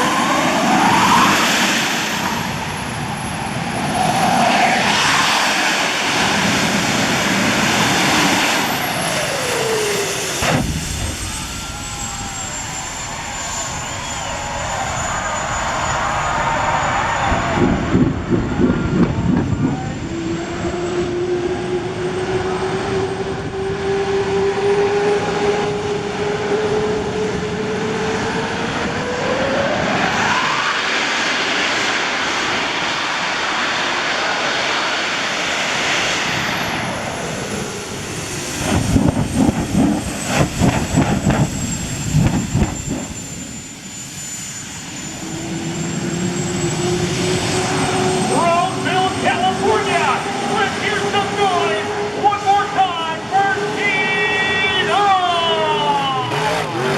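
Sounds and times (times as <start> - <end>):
monster truck engine revving: 55.6 - 56.9.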